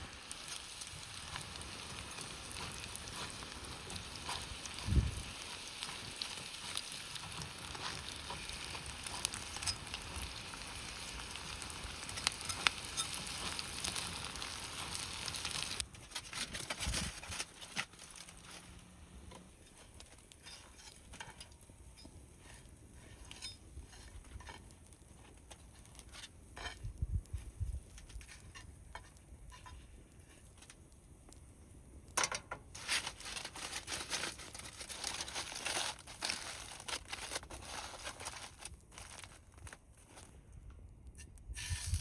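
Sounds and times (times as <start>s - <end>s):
packaging crinkling and rustling: 0.0s - 21.3s, 32.7s - 40.6s.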